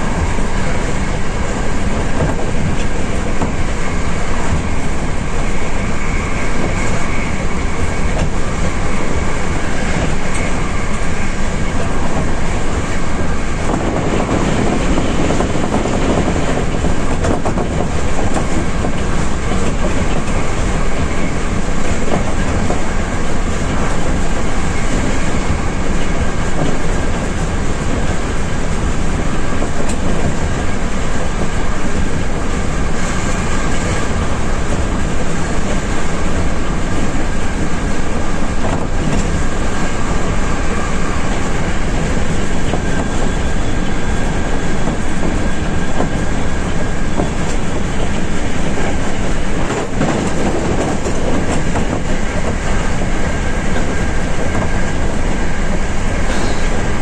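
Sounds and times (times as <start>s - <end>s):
train wheels on rail: 0.0s - 57.0s.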